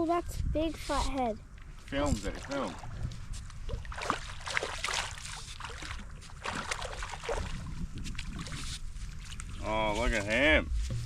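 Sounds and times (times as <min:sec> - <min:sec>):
water splashing in shallows: 0:01.9 - 0:10.4
steady low rumble: 0:05.7 - 0:11.0.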